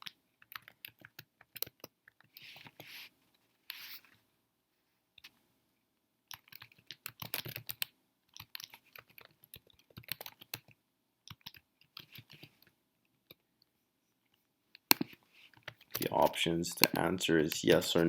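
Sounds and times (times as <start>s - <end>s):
typing on computer keyboard: 0.0s - 2.4s, 6.3s - 12.5s.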